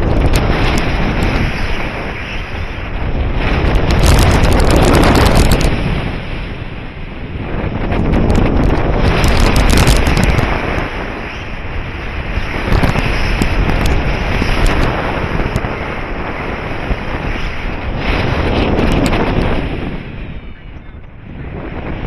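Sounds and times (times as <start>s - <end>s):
crackling clicks: 0.0s - 1.7s, 3.6s - 5.8s, 8.6s - 10.9s, 12.7s - 15.8s, 18.8s - 19.6s
wind rushing over microphone: 0.0s - 22.0s.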